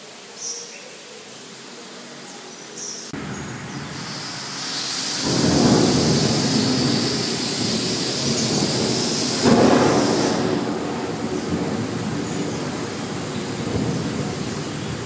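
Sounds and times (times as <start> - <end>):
thunder rumbling: 3.2 - 15.0.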